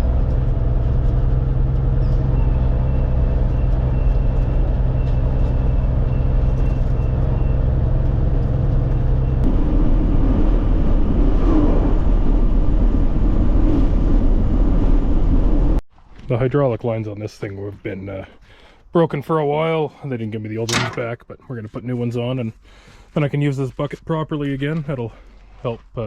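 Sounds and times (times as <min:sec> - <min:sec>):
rough road noise: 0:00.0 - 0:18.8.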